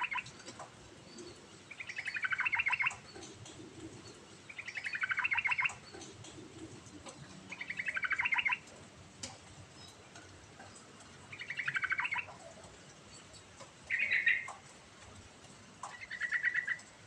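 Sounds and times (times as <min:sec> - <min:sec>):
bird singing chattering notes: 0:00.0 - 0:08.7, 0:10.6 - 0:12.5, 0:13.1 - 0:14.6, 0:15.9 - 0:16.9.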